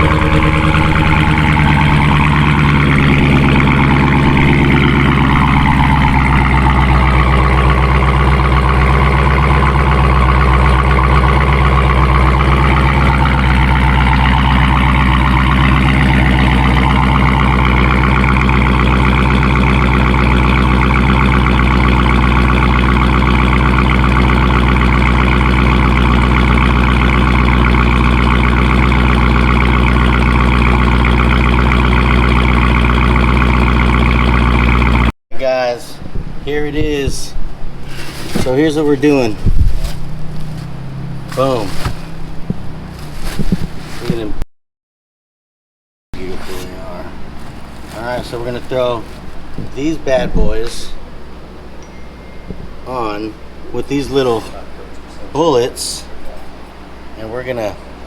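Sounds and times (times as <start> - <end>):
car engine idling: 0.0 - 35.2, 35.9 - 44.4, 46.2 - 58.0
faint high whine: 51.8 - 54.2.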